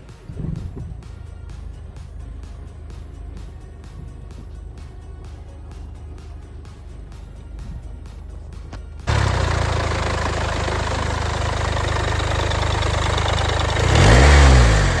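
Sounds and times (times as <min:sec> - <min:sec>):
diesel engine idling and revving: 0:00.0 - 0:15.0.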